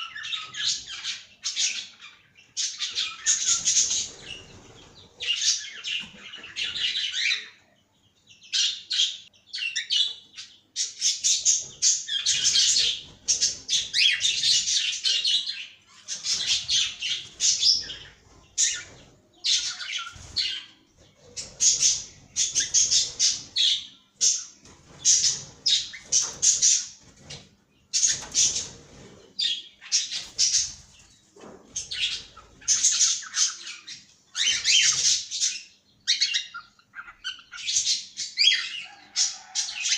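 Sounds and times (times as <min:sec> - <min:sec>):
cockatiels chirping and squawking: 0:00.0 - 0:07.6, 0:08.5 - 0:39.9.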